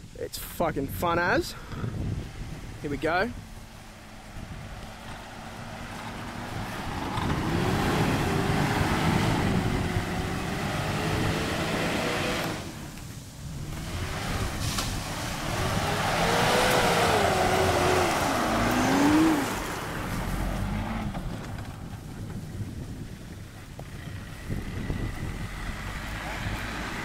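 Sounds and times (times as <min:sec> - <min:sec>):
diesel engine revving: 0:01.9 - 0:27.0.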